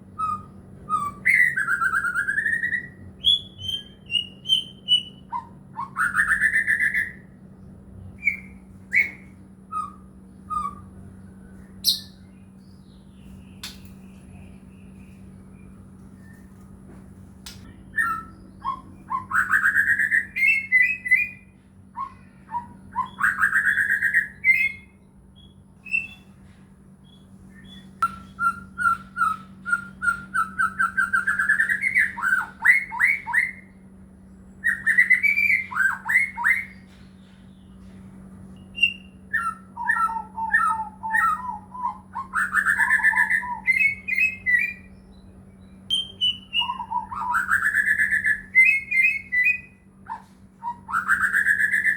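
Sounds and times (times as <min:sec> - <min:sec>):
bird singing whistles and trills: 0:00.0 - 0:07.4, 0:08.0 - 0:16.6, 0:17.6 - 0:26.4, 0:27.0 - 0:37.8, 0:38.5 - 0:51.9.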